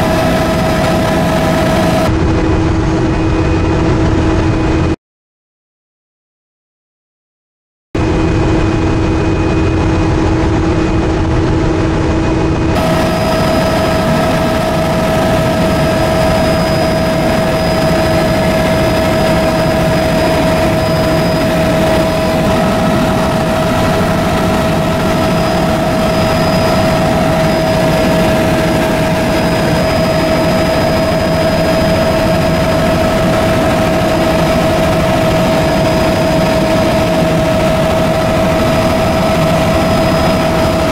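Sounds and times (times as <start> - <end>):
helicopter turbine and rotor drone: 0.0 - 5.0, 8.0 - 40.9
high turbine whine: 0.0 - 5.0, 8.0 - 40.9.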